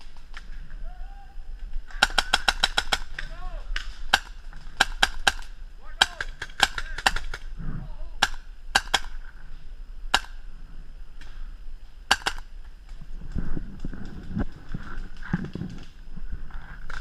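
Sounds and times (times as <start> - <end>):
paintball markers firing pops: 2.0 - 7.5, 8.2 - 9.2, 10.1 - 10.4, 12.1 - 12.5.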